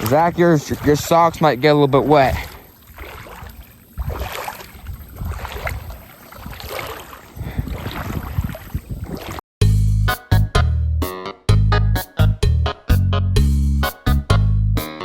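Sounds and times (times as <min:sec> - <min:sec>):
feet splashing through water: 0:00.0 - 0:09.4.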